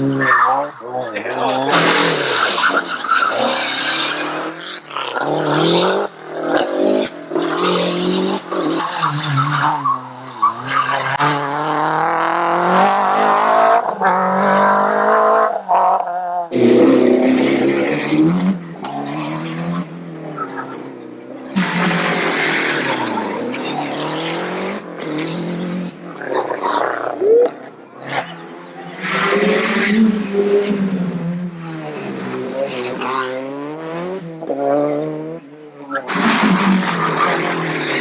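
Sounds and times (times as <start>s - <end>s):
rally car engines revving: 0.0s - 38.0s.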